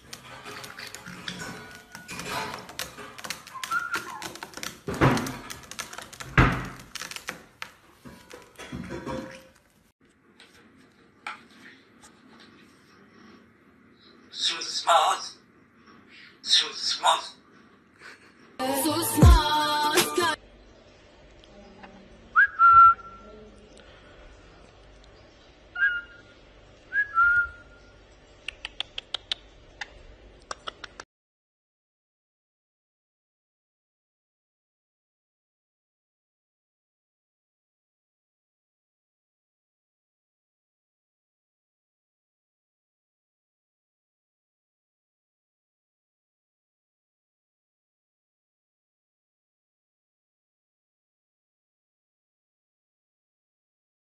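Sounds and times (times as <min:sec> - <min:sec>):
claws and beaks tapping on a table: 0:00.1 - 0:09.3.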